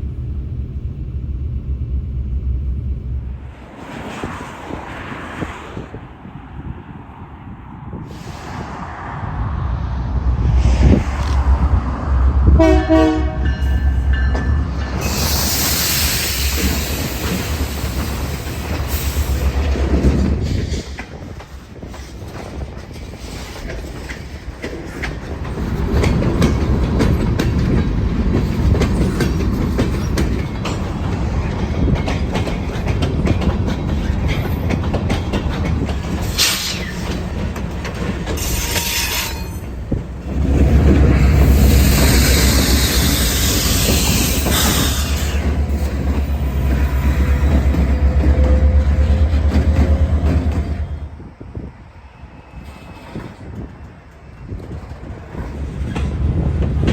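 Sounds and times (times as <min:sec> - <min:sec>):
loud low rumble: 0:07.6 - 0:13.4
wheels clicking over rail joints: 0:16.2 - 0:51.0
high wheel squeals: 0:38.4 - 0:39.7.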